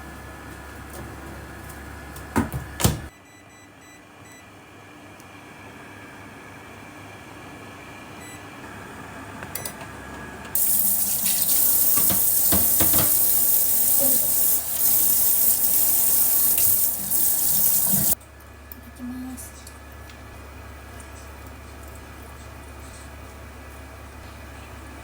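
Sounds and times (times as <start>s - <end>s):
tap water running into sink: 10.6s - 18.2s.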